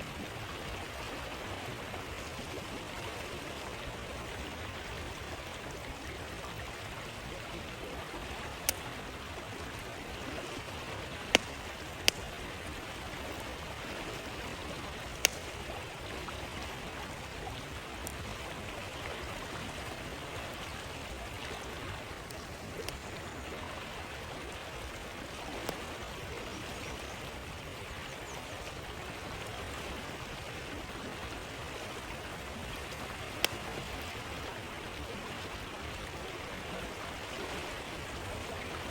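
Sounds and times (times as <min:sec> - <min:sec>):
flowing stream: 0:00.0 - 0:38.9
campfire pops and cracks: 0:08.2 - 0:17.0, 0:17.6 - 0:18.5, 0:20.6 - 0:23.1, 0:32.9 - 0:33.8.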